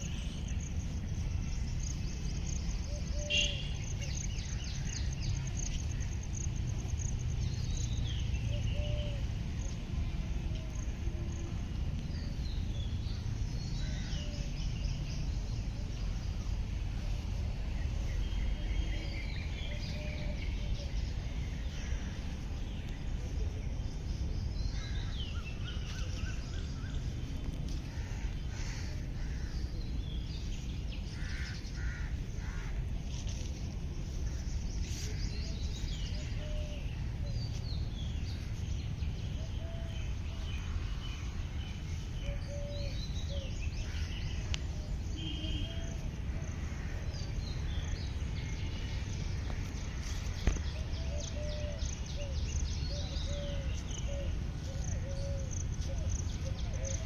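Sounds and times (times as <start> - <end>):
birds chirping and whistling: 0.0 - 5.7, 7.4 - 9.3, 33.1 - 46.1, 47.2 - 57.0
low outdoor rumble: 0.0 - 57.0.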